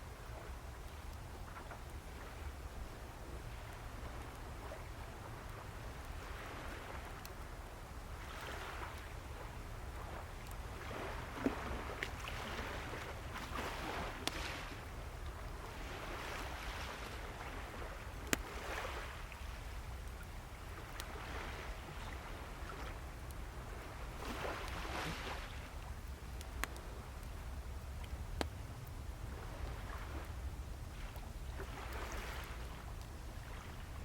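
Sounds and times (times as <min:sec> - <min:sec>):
sea waves washing ashore: 0:03.4 - 0:34.0
wood fire crackling and popping: 0:18.1 - 0:21.1, 0:25.6 - 0:34.0.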